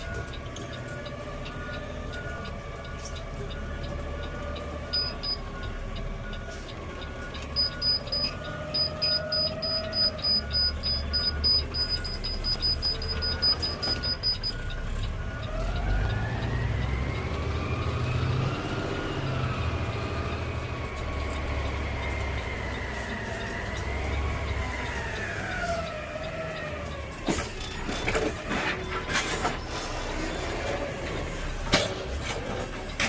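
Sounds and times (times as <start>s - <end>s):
emergency vehicle siren wailing: 0.0s - 31.6s
electronic beeps: 2.2s - 18.2s.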